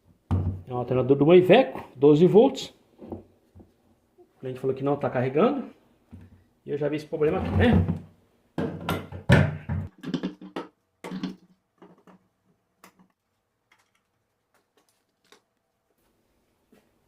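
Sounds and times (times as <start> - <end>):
tools clicking and knocking: 9.8 - 15.4.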